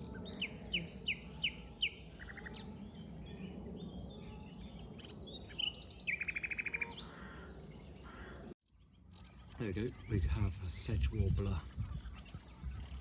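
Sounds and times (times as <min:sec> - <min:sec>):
nightingale singing: 0:00.0 - 0:03.1.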